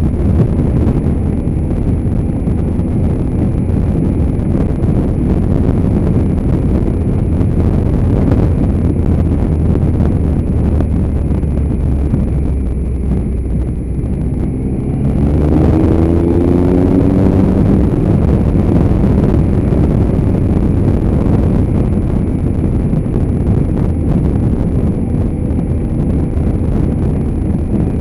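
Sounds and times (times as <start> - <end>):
motorcycle engine running: 0.0 - 28.0
wind rushing over microphone: 0.0 - 28.0.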